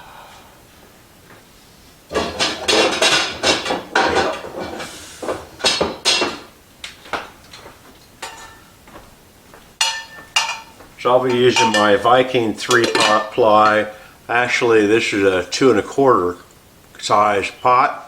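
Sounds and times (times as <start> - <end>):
metal pots and pans clanking: 2.1 - 8.7, 9.8 - 13.9.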